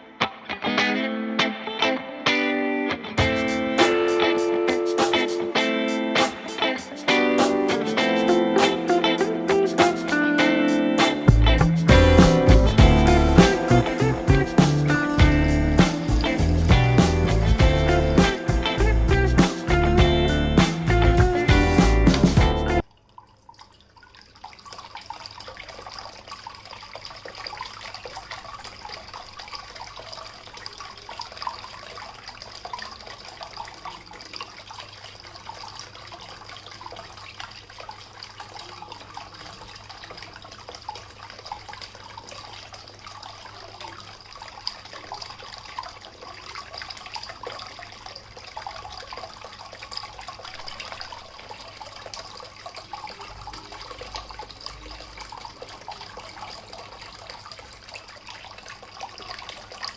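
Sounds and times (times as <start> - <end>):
fountain water splashing and trickling: 3.2 - 59.9.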